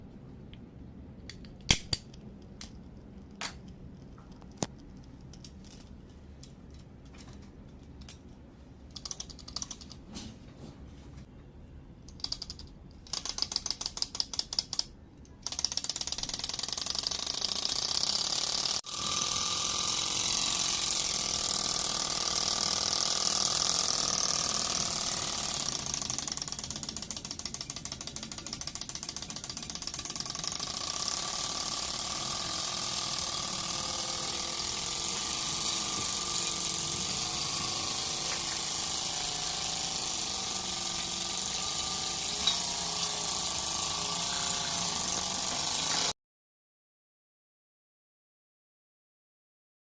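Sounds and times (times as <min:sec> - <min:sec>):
small model engine running: 0:15.4 - 0:46.2
model engine turning over: 0:15.5 - 0:46.1.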